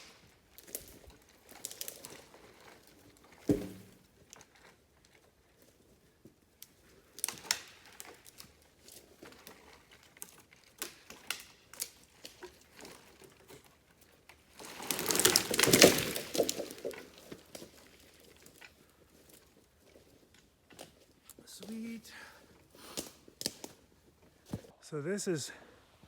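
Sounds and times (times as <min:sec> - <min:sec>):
branches cracking: 0:00.0 - 0:04.4, 0:06.6 - 0:13.7, 0:14.4 - 0:22.0, 0:22.8 - 0:24.7
tree crashing down: 0:03.4 - 0:04.2, 0:14.6 - 0:18.0.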